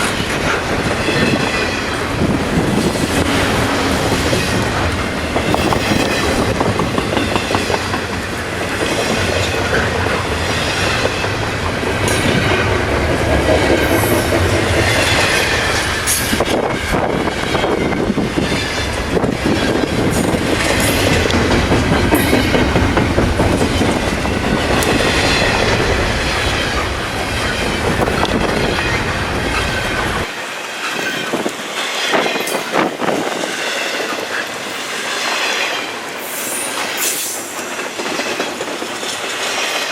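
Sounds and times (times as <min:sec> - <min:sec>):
flange squeal: 0:00.0 - 0:12.8
wind rumbling on microphone: 0:00.0 - 0:30.3
freight train rolling past: 0:00.0 - 0:39.9
wheels clicking over rail joints: 0:00.0 - 0:39.9.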